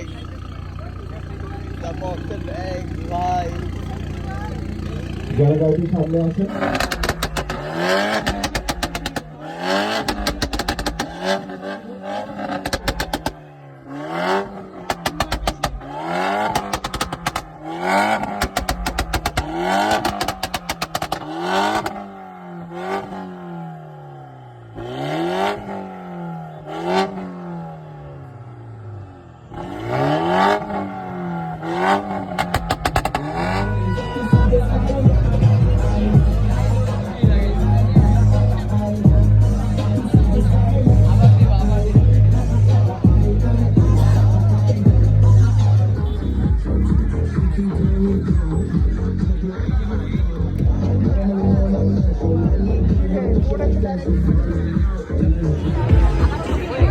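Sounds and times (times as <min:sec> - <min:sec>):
car engine revving: 0:00.0 - 0:56.9
exhaust crackling pops: 0:06.5 - 0:11.6, 0:12.4 - 0:13.4, 0:14.8 - 0:22.0, 0:31.9 - 0:33.6.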